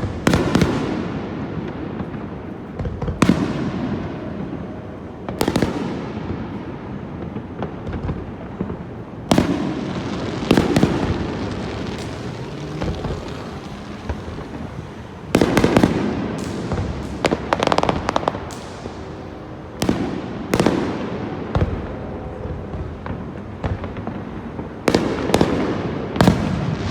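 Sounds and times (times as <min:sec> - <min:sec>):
fireworks booms and bangs: 0:00.0 - 0:26.9
fireworks crackling: 0:00.0 - 0:26.9
rumbling echoes: 0:06.0 - 0:26.9.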